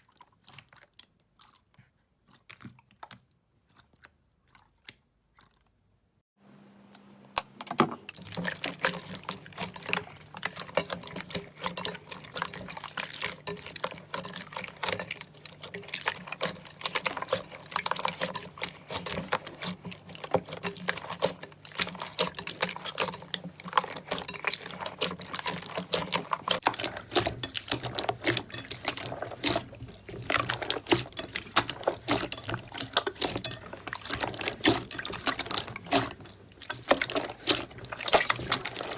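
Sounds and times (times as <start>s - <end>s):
slime squishing wet clicks: 8.2s - 38.9s.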